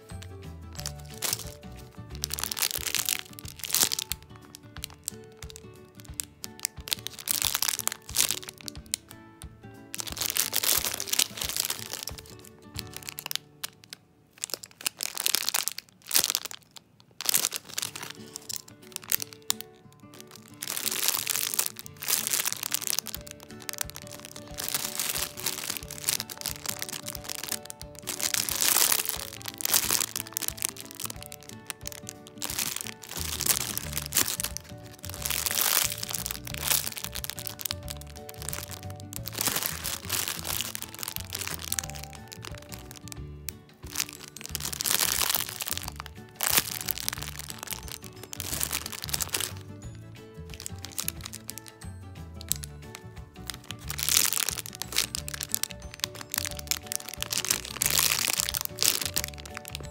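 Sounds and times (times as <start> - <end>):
plastic packaging crinkling: 0.0 - 9.2, 9.9 - 43.2, 43.8 - 59.9
background music: 0.0 - 16.5, 17.2 - 59.9.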